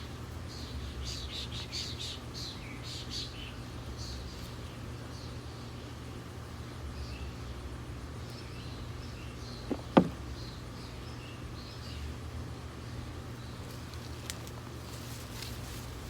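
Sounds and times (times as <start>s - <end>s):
short knocks: 9.7s - 10.3s.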